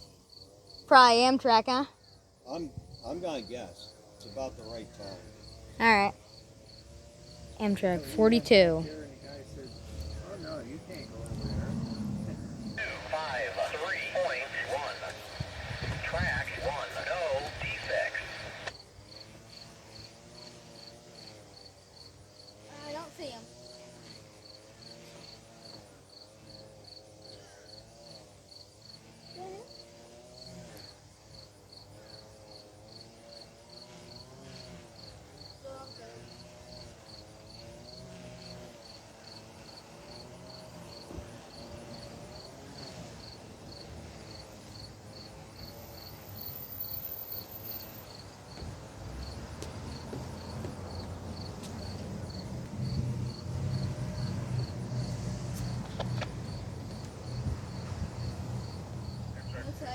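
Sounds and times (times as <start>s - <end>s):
crickets chirping: 0.0s - 59.9s
low rumble: 11.0s - 12.8s.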